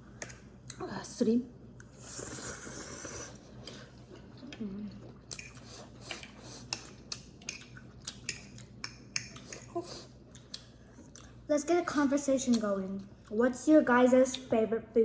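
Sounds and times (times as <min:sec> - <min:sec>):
chewing with wet clicks: 0:05.0 - 0:11.5, 0:12.4 - 0:13.4.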